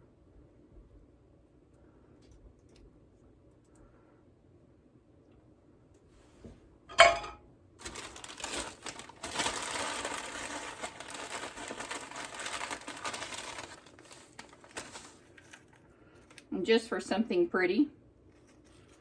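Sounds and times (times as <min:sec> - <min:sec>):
packaging crinkling: 0:07.8 - 0:16.5.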